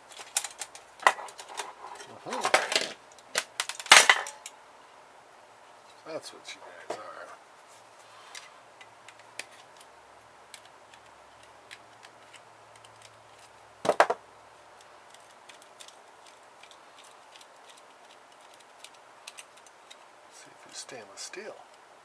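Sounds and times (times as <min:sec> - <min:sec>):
light clicks of small parts and tools: 0:10.5 - 0:13.5, 0:14.8 - 0:20.1.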